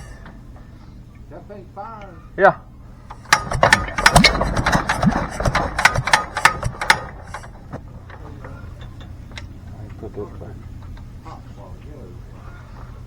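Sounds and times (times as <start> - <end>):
hand crank: 3.1 - 8.2
engine firing pops and knocks: 3.1 - 10.0.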